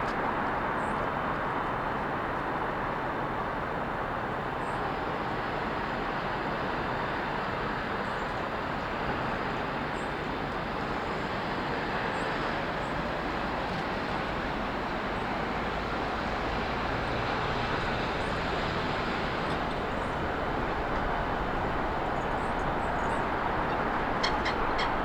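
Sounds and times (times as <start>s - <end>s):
road traffic hiss: 0.0s - 25.0s
small birds chirping: 17.7s - 25.0s.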